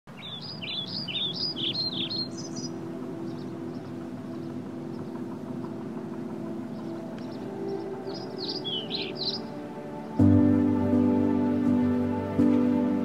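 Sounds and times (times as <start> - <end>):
bird chirping: 0.1 - 10.3.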